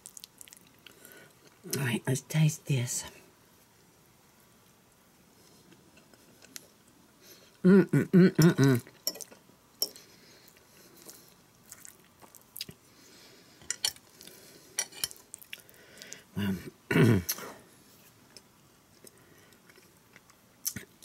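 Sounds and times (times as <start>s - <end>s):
person chewing food: 0.0s - 1.6s, 8.4s - 16.2s, 18.2s - 21.0s
low throat sounds: 7.6s - 8.9s.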